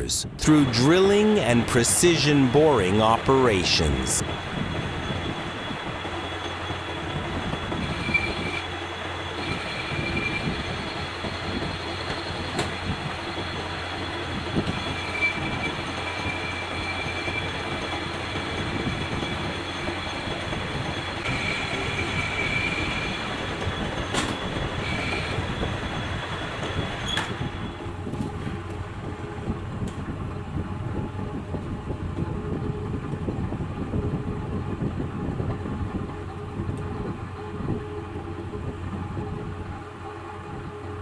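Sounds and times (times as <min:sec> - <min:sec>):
lathe humming: 0:00.6 - 0:32.2
high-pitched squeal: 0:04.1 - 0:11.2, 0:14.7 - 0:23.7.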